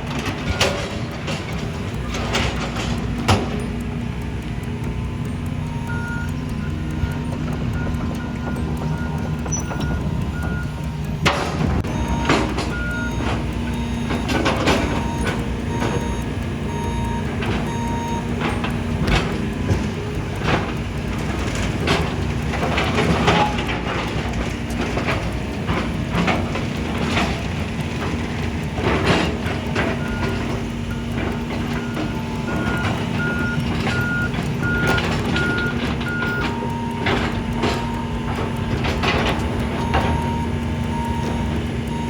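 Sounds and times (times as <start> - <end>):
heavy demolition machinery running: 0.0 - 42.0
backup alarm beeping: 1.9 - 24.3, 25.0 - 42.0.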